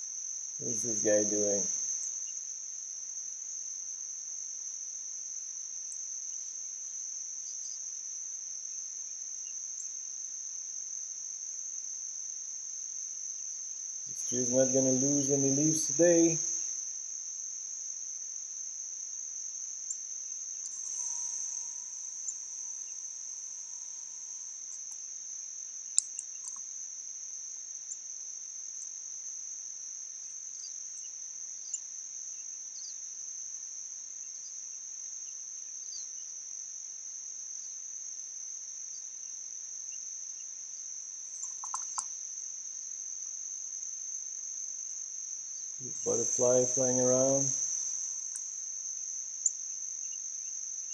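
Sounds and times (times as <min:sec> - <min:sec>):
insects chirring: 0:00.0 - 0:50.9
faint short ticks and chirps: 0:41.4 - 0:42.1.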